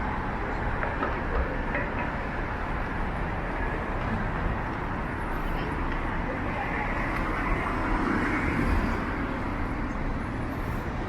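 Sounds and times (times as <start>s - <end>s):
traffic rumble and hiss: 0.0s - 11.0s.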